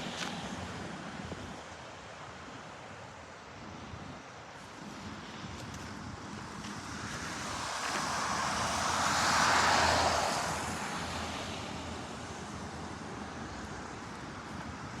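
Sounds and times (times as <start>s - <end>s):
road vehicle passing by: 7.0s - 13.8s.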